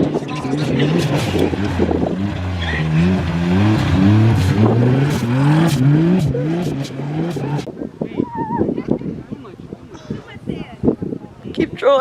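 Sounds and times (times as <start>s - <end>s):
vehicle engine revving: 0.0s - 7.7s.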